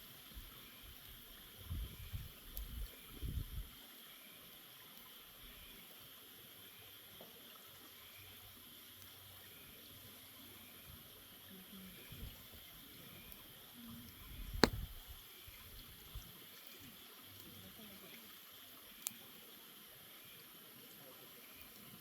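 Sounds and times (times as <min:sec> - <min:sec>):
thumps on the microphone: 0:14.6 - 0:14.9.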